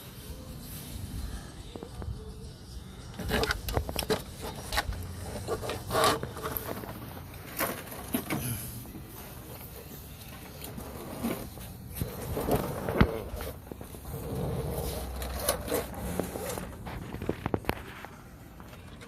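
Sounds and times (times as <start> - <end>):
parts scraping and rubbing: 0.0 - 19.0
tools and metal parts clicking: 3.1 - 8.4.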